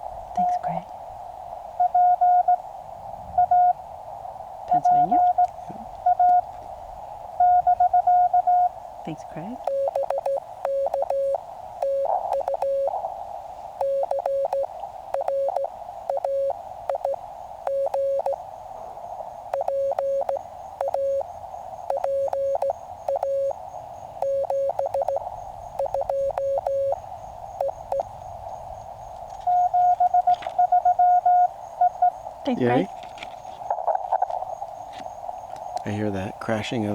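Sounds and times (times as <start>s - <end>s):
receiver hiss: 0.0s - 36.9s
morse code tones: 1.8s - 2.6s, 3.4s - 3.8s, 4.7s - 6.5s, 7.4s - 13.0s, 13.8s - 18.4s, 19.5s - 21.2s, 21.9s - 23.6s, 24.2s - 25.2s, 25.8s - 27.0s, 27.6s - 28.1s, 29.4s - 32.9s.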